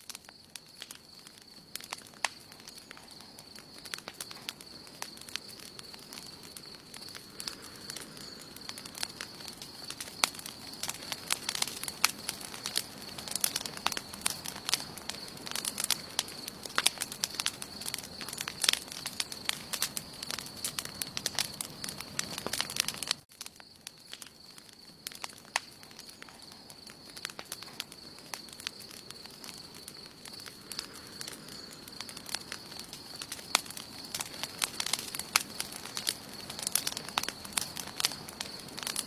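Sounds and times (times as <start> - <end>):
campfire crackling: 0.0 - 39.0.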